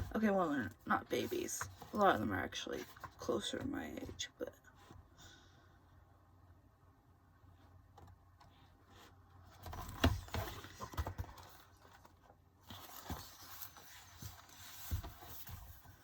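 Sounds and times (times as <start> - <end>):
paper pages rustling: 8.9 - 16.0.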